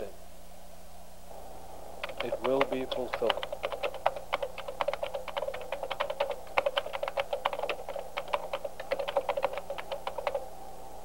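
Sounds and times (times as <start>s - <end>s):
fast typing on laptop keyboard: 2.0s - 10.5s.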